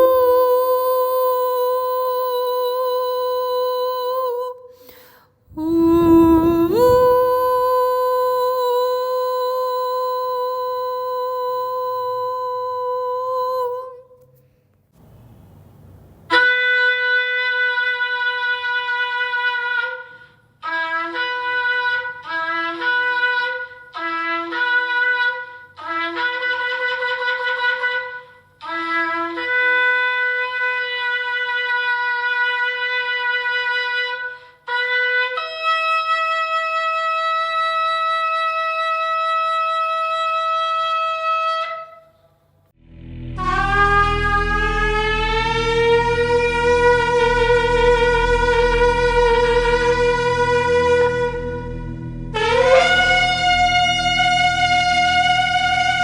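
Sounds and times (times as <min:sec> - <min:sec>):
shofar blasts: 0:00.0 - 0:04.5, 0:05.5 - 0:14.0, 0:16.3 - 0:42.0, 0:42.9 - 0:56.0.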